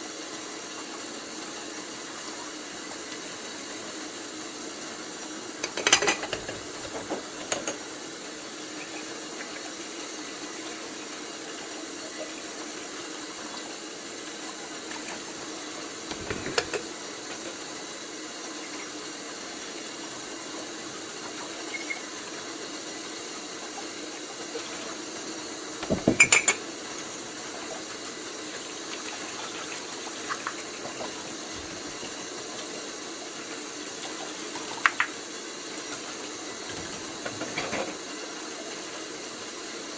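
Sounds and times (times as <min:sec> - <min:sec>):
dishes and pots clattering: 0:05.6 - 0:07.8, 0:16.1 - 0:16.9, 0:25.8 - 0:26.7, 0:36.8 - 0:38.0.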